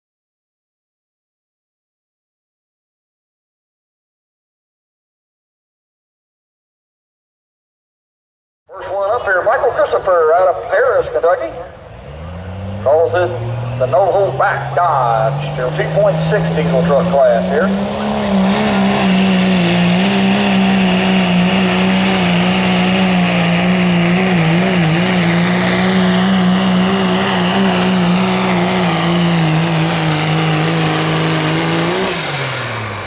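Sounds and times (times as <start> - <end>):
diesel engine at full throttle: 8.8 - 33.0.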